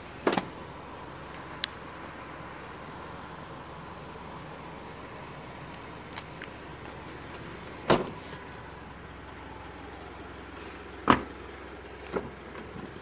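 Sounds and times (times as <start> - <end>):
car door shutting: 0.2 - 0.6, 7.3 - 8.5, 11.0 - 11.3.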